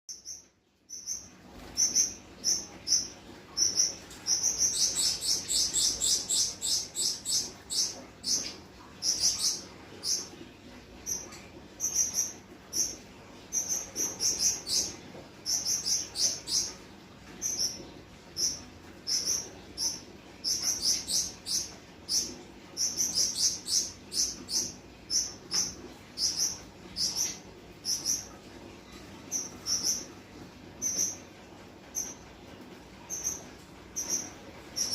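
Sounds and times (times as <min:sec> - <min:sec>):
finches chirping: 0:00.1 - 0:10.4, 0:11.0 - 0:16.8, 0:17.4 - 0:28.4, 0:29.2 - 0:30.2, 0:30.8 - 0:31.3, 0:31.9 - 0:32.2, 0:33.0 - 0:34.9.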